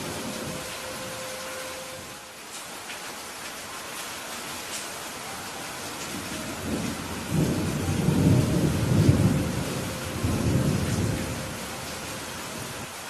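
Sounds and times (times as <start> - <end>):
steady rain: 0.0 - 13.0
low roll of thunder: 6.0 - 12.9.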